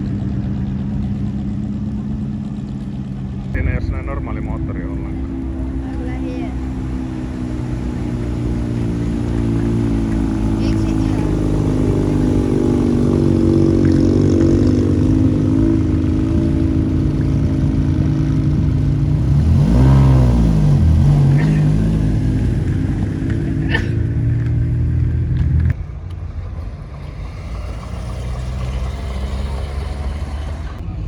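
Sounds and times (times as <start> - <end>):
car engine revving at idle: 0.0 - 30.8.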